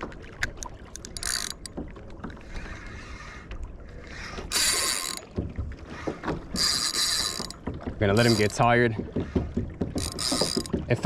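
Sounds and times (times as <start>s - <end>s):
fishing reel clicking: 0.4s - 1.7s, 4.4s - 5.3s, 6.5s - 7.6s, 8.2s - 8.6s, 10.0s - 10.8s.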